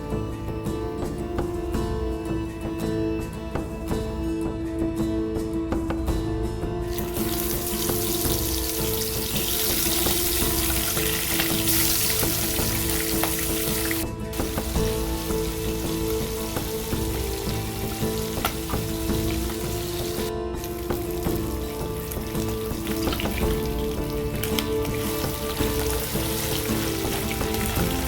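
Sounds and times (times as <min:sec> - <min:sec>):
food sizzling in hot oil: 0:06.9 - 0:28.0.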